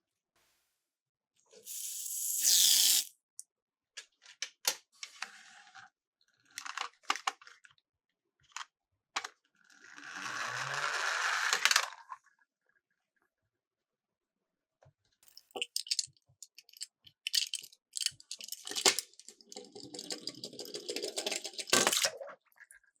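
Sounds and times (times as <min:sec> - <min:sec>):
toy cars rolling down plastic slope: 0:09.5 - 0:12.2, 0:16.4 - 0:22.1.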